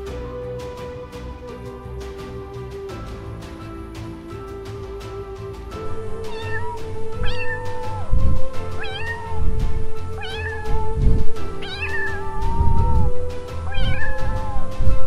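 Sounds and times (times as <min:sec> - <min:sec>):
music with heavy low beats: 0:00.0 - 0:15.0
cat meowing: 0:06.3 - 0:08.1, 0:08.8 - 0:09.6, 0:10.2 - 0:13.1, 0:13.7 - 0:14.8.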